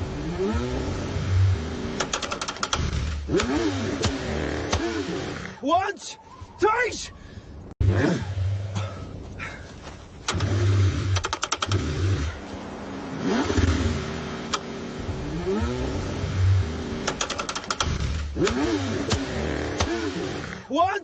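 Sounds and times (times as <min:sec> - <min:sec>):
car engine cranking and revving: 0:00.0 - 0:05.6, 0:07.8 - 0:09.2, 0:10.2 - 0:20.7
sharp clicks: 0:02.0 - 0:04.9, 0:10.2 - 0:11.9, 0:14.5 - 0:14.7, 0:17.0 - 0:20.0.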